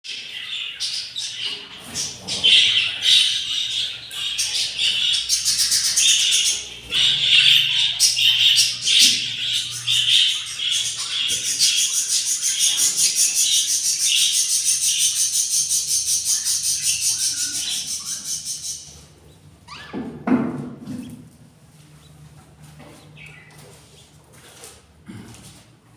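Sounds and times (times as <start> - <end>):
budgerigars chirping: 0.1 - 20.0
nestlings begging calls: 0.2 - 20.0.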